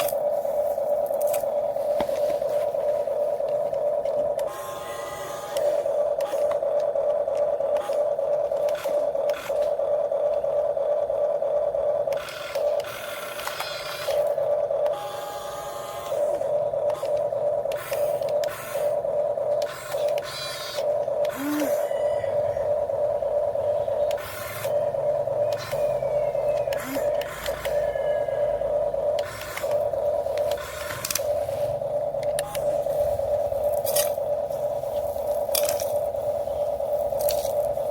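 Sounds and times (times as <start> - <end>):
buzzy gear noise: 0.0 - 37.9
small electric motor whining: 0.0 - 37.9
sharp clicks: 15.9 - 21.7, 25.4 - 27.9, 29.0 - 37.9.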